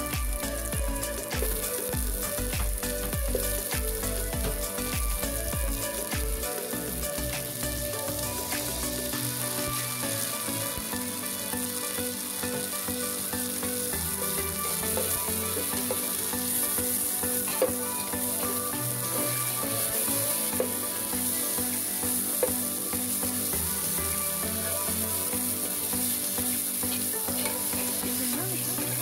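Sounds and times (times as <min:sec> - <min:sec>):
onions sizzling in hot oil: 0:00.0 - 0:29.0.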